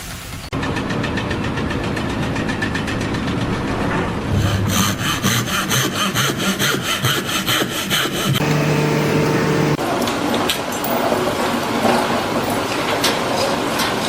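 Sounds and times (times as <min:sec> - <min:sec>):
rhythmic rasping strokes: 0:04.4 - 0:09.8.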